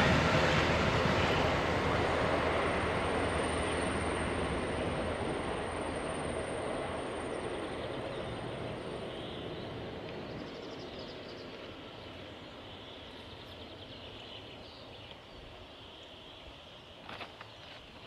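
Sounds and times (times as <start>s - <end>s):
train rumbling: 0.0s - 12.5s.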